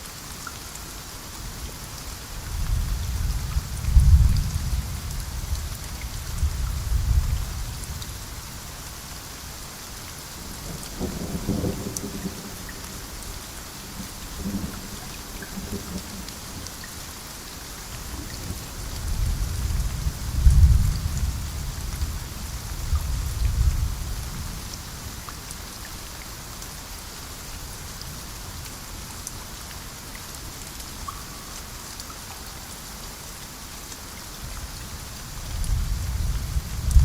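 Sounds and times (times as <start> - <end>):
rain hissing on foliage: 0.0 - 37.0
rolling thunder: 2.7 - 5.4, 19.1 - 24.1.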